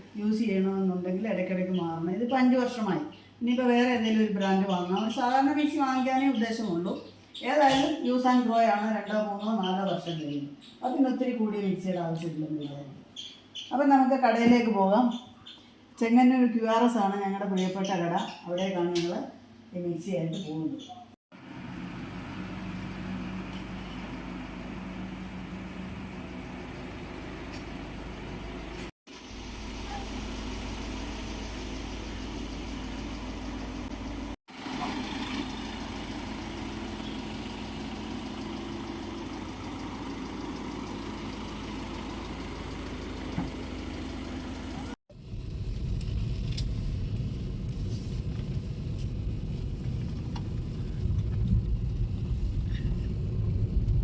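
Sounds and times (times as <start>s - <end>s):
car engine and road noise: 21.3s - 54.0s.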